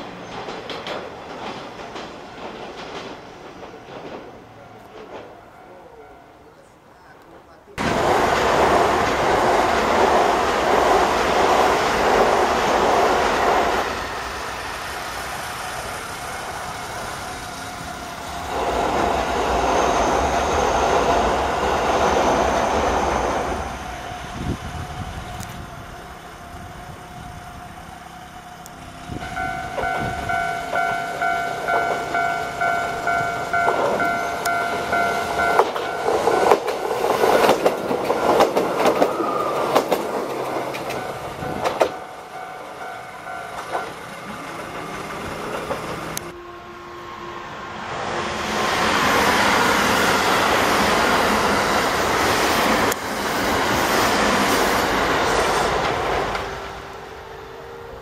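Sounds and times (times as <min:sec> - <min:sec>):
train wheels clacking: 0:00.0 - 0:06.1, 0:07.8 - 0:24.3, 0:28.6 - 0:46.3
trains rumbling over steel bridge: 0:00.0 - 0:58.0
level crossing alarm ringing: 0:29.2 - 0:37.5, 0:40.9 - 0:44.1.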